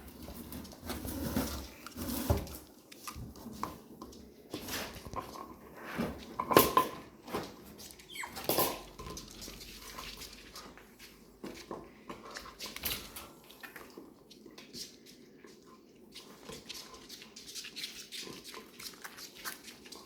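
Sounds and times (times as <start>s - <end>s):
light knocks and scrapes: 0.0s - 13.3s
small paws pattering: 0.0s - 20.0s.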